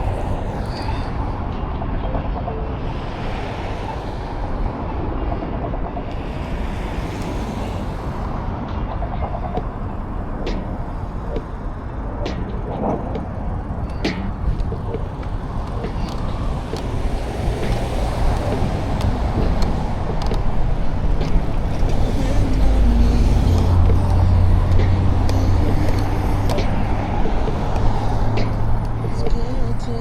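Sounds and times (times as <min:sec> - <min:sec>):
road traffic passing: 0:00.0 - 0:30.0
vehicle rumbling by: 0:12.2 - 0:29.8.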